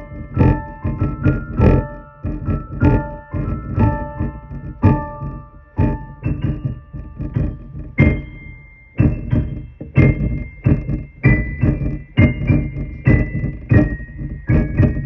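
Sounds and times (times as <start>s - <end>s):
electric piano chords: 0.0s - 15.0s
low thud: 0.0s - 15.0s.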